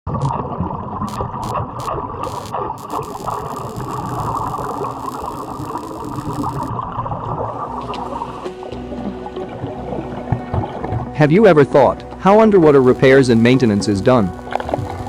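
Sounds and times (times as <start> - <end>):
sharp clicks: 1.1 - 6.7, 12.8 - 15.0
welding arc crackling: 1.1 - 6.7, 12.6 - 15.0.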